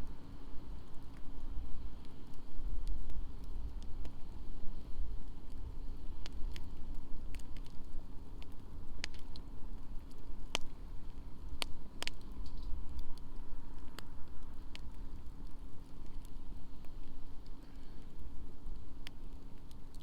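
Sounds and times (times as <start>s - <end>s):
wood fire crackling: 0.0s - 20.0s
sharp pops from fire: 5.2s - 20.0s.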